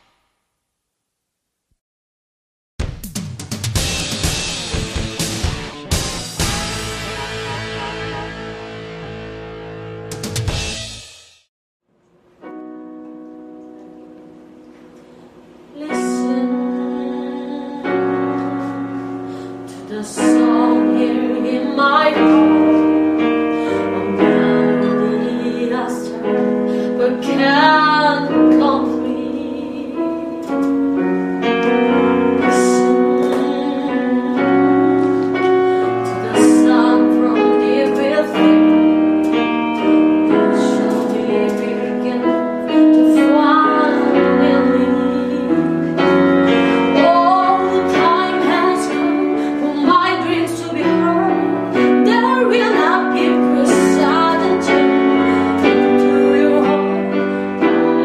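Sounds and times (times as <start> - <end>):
piano accompaniment: 3.5 - 11.1, 12.2 - 58.0
woman singing: 15.7 - 18.7, 19.6 - 30.4, 31.5 - 35.1, 35.8 - 58.0.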